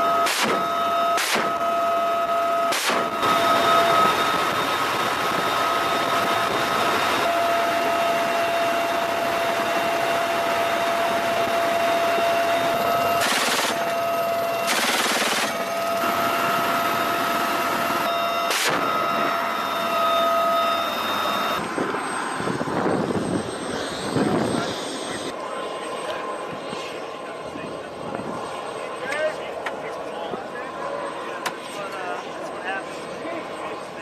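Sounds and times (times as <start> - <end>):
helicopter turbine whine: 0.0 - 34.0
machine-gun fire: 13.2 - 13.8, 14.7 - 15.6.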